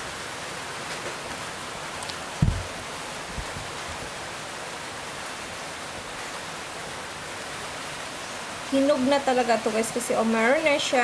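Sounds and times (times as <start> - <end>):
steady background hiss: 0.0 - 11.0
low thumps: 2.4 - 3.7.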